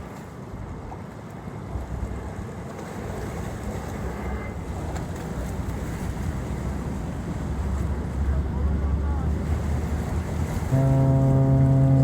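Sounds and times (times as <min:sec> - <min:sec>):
water washing: 0:09.2 - 0:12.0.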